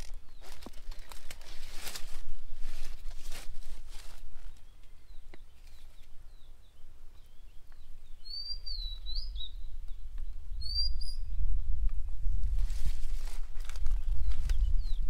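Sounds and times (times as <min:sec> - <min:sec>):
faint bird chirps: 0:04.4 - 0:11.8
bird whistled calls: 0:07.2 - 0:09.7, 0:10.6 - 0:11.4.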